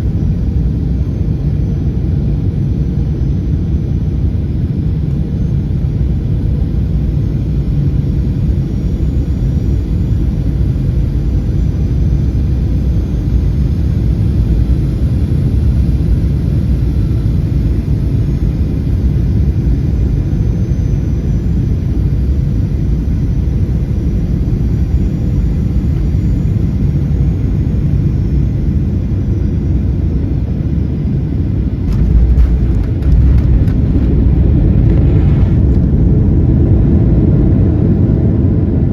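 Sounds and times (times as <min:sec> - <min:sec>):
aircraft cabin rumble: 0:27.4 - 0:38.9.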